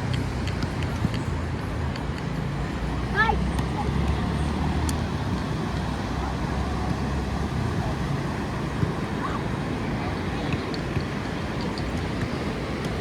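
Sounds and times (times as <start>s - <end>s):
faint far-off voices: 5.6s - 13.0s.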